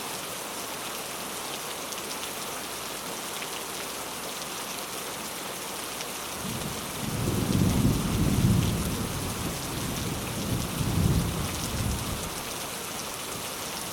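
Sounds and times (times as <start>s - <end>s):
rain hissing: 6.1s - 13.9s
thunder rumble: 6.4s - 12.3s.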